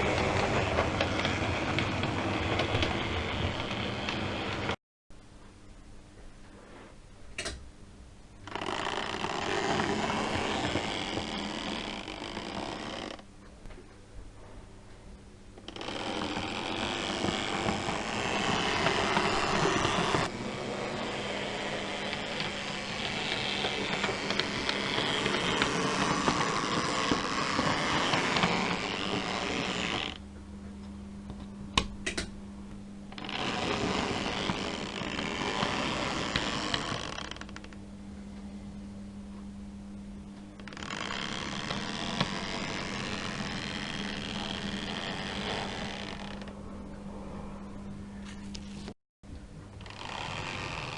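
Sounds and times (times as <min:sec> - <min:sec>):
model train whirring rumble: 0:00.0 - 0:04.8, 0:08.8 - 0:13.1, 0:15.7 - 0:30.2, 0:33.2 - 0:37.5
low hum: 0:00.0 - 0:50.9.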